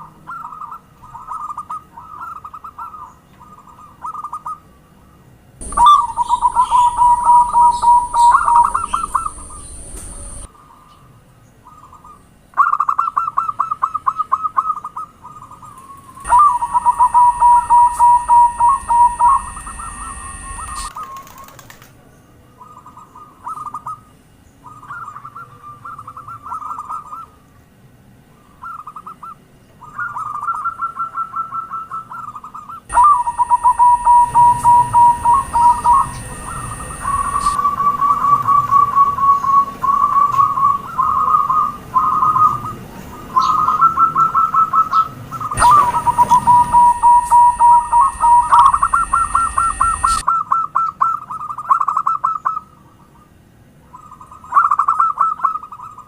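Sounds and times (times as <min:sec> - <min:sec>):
doves cooing: 0:05.6 - 0:11.0, 0:11.7 - 0:21.8, 0:28.6 - 0:52.7.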